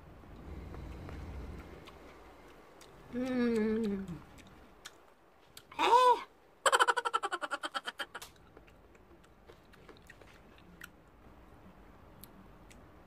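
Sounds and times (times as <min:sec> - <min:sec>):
person chewing wetly: 0:00.4 - 0:05.7, 0:08.4 - 0:11.0.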